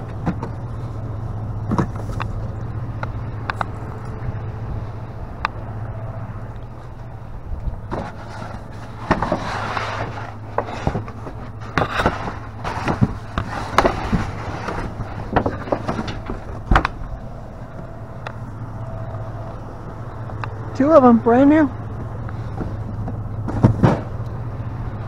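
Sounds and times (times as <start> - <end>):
steady low hum: 0.0 - 25.0
items clattering in a dumpster: 7.8 - 17.1, 22.5 - 24.2
rustling: 7.9 - 16.8.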